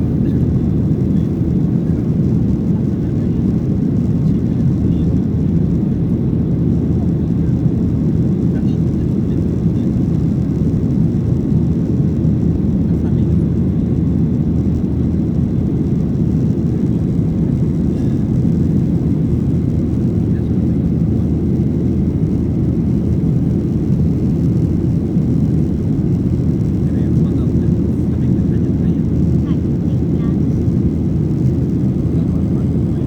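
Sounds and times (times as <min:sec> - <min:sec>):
airplane cabin engine rumble: 0:00.0 - 0:33.0.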